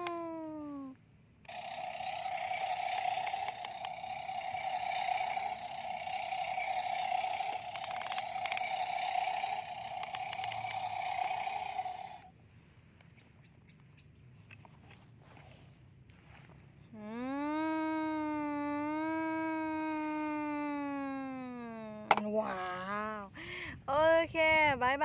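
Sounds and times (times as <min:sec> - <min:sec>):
rattle of clicks: 0:01.5 - 0:12.3
toy electric motor whirring: 0:01.5 - 0:12.3.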